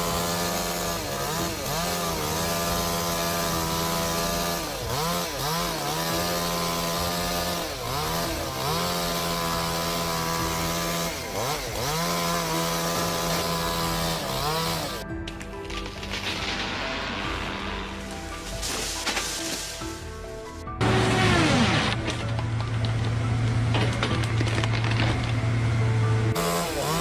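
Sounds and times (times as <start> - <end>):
chainsaw engine revving: 0.0 - 15.1, 20.8 - 27.0.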